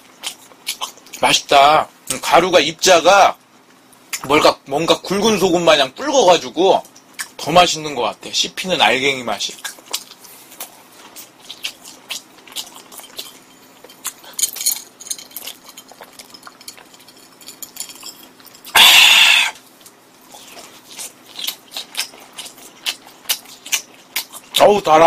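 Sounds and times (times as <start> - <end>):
wet chewing and mouth clicks: 0.0 - 1.3, 6.8 - 7.4, 9.5 - 25.0.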